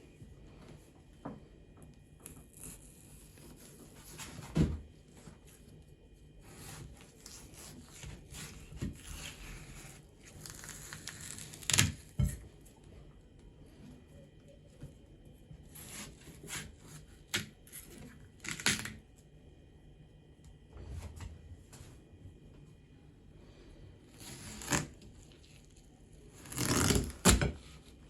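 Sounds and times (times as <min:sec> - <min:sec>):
watermelon scraping and crunching: 0:06.4 - 0:12.2, 0:15.6 - 0:19.0, 0:24.0 - 0:27.9.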